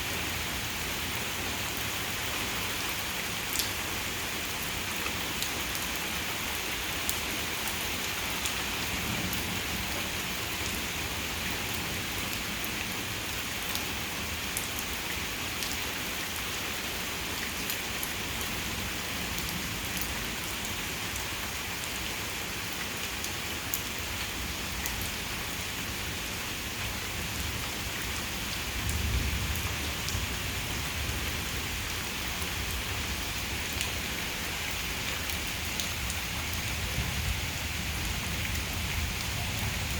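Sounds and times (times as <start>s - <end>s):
heavy rain falling: 0.0s - 39.9s
raindrops ticking nearby: 3.3s - 3.8s
low rumble of thunder: 28.6s - 33.6s.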